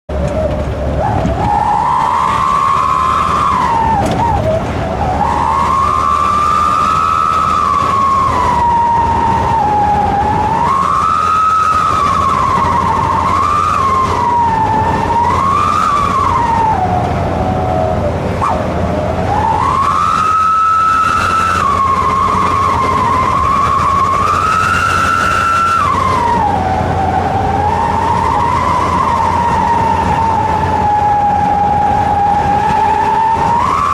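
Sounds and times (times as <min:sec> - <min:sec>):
engine running low: 0:00.1 - 0:33.9
exhaust whistle howling: 0:00.1 - 0:33.9.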